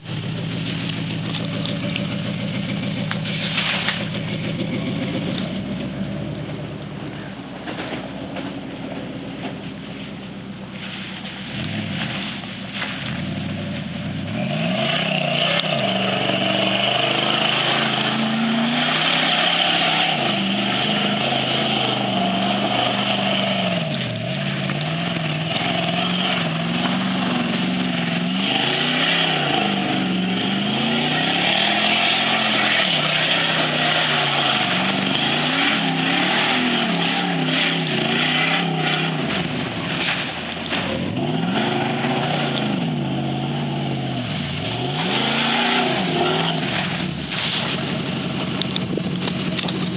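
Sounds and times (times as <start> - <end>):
truck engine revving: 0.0 - 49.9.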